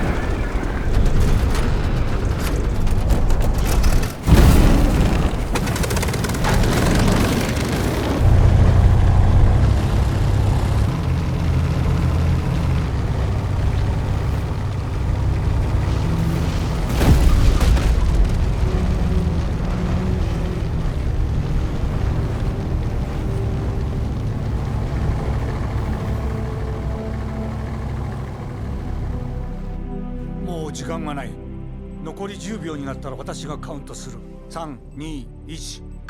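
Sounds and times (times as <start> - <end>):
booms: 0.0 - 25.7
low rumble: 0.0 - 29.8.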